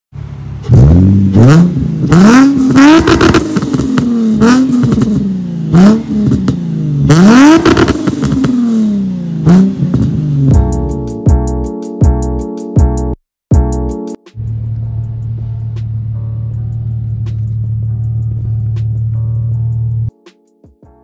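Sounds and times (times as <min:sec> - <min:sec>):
car engine revving: 0:00.2 - 0:10.6, 0:14.3 - 0:20.1.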